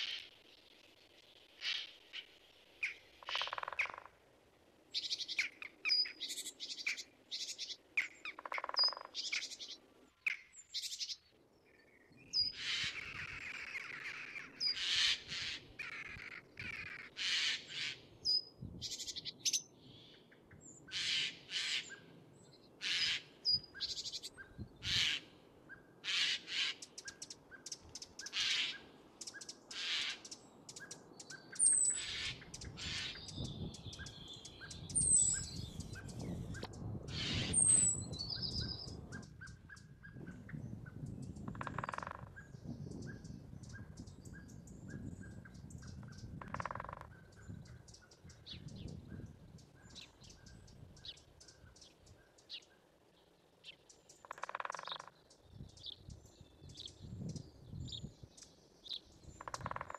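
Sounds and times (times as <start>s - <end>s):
wild birds chirping: 0.0s - 59.9s.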